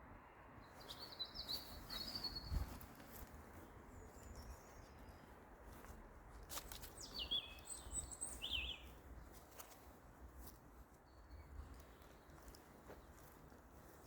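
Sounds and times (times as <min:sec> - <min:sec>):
birds chirping and whistling: 0:00.8 - 0:02.7, 0:07.0 - 0:08.9.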